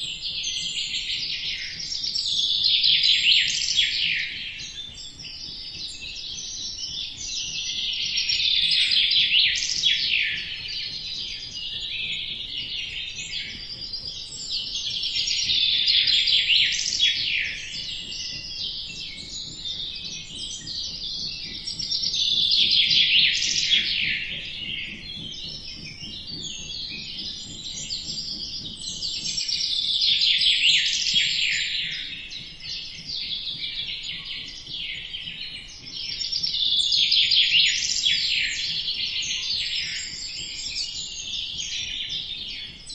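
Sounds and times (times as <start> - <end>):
small birds chirping and twittering: 0.0 - 42.9.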